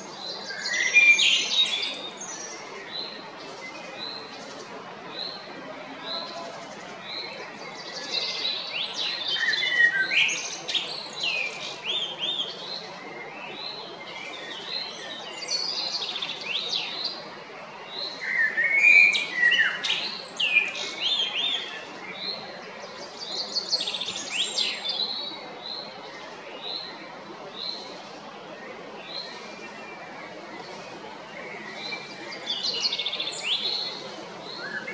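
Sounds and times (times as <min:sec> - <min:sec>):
blackbird singing: 0:00.3 - 0:03.2, 0:06.1 - 0:12.8, 0:17.8 - 0:22.4, 0:31.5 - 0:34.9.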